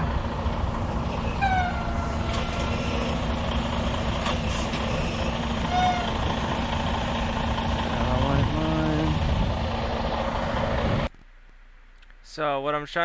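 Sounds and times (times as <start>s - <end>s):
truck diesel engine running: 0.0s - 11.1s
brief squeal: 1.1s - 3.2s, 4.3s - 6.2s.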